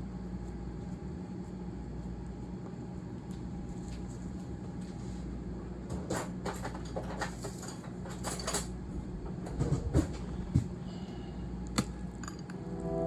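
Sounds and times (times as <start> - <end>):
steady low hum: 0.0 - 5.9, 8.8 - 13.0.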